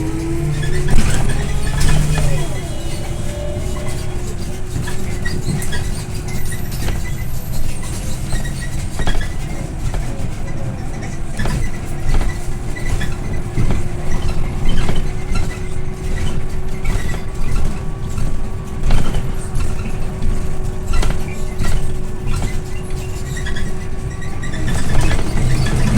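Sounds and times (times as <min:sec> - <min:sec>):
constant hum: 0:00.0 - 0:07.1
body rattles and knocks: 0:00.0 - 0:25.9
bus engine and road rumble: 0:00.0 - 0:25.9.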